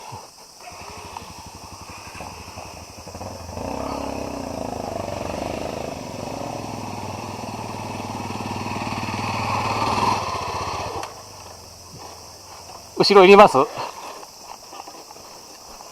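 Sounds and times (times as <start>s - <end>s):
motorcycle engine revving: 0.6s - 13.0s.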